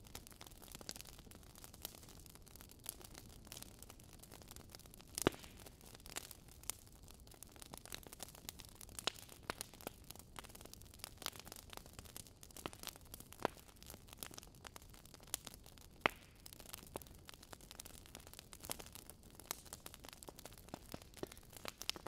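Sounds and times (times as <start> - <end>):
fire popping: 0.0 - 22.0
wood fire crackling: 0.0 - 22.0.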